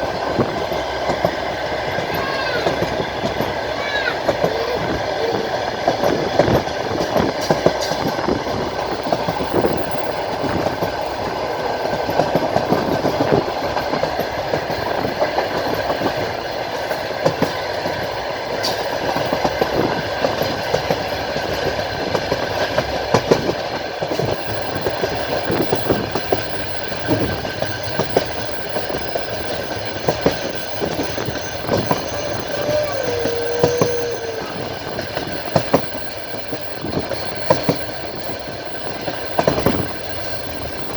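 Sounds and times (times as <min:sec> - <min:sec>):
clicking over rail joints: 0:00.0 - 0:40.9
train wheels rumbling on rails: 0:00.0 - 0:40.9
wavering whine: 0:24.2 - 0:40.9.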